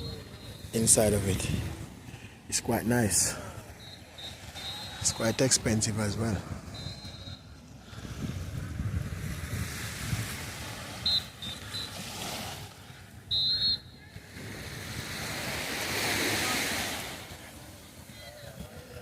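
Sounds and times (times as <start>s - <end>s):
wind rumbling on microphone: 5.0s - 11.6s
sea waves washing onto shore: 7.8s - 13.2s, 14.1s - 19.0s.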